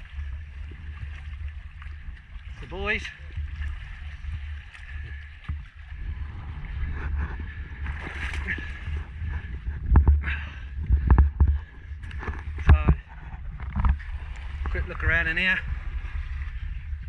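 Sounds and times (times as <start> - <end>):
water: 0.0 - 17.0
wind rumbling on microphone: 0.0 - 17.0.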